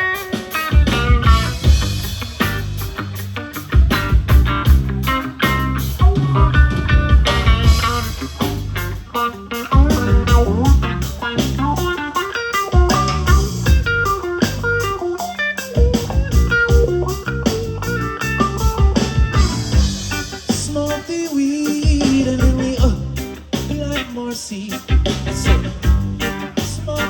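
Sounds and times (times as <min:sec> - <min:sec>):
guitar lines: 0:00.0 - 0:27.0
reggae band playing: 0:00.0 - 0:27.0.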